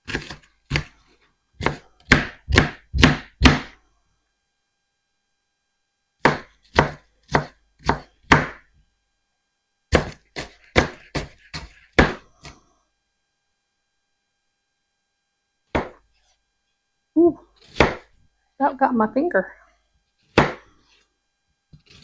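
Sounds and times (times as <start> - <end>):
knife chopping on cutting board: 0.0 - 1.0, 1.6 - 3.8, 6.2 - 8.7, 9.9 - 12.6, 15.8 - 16.1, 17.6 - 18.1, 20.3 - 21.0, 21.8 - 22.0.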